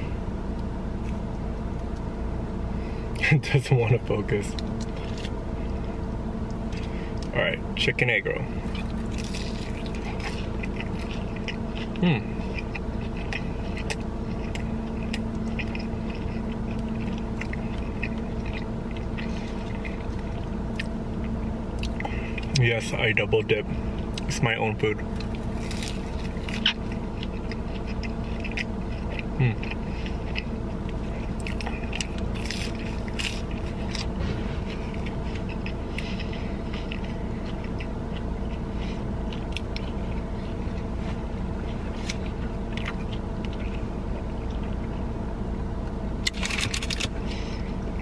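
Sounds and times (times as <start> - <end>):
car air conditioning hum: 0.0 - 48.0
chewing: 4.5 - 7.3, 8.6 - 22.7, 24.0 - 45.6.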